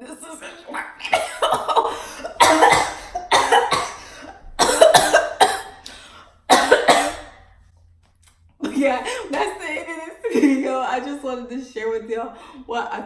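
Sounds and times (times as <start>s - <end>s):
girl coughing harshly: 1.0s - 7.4s.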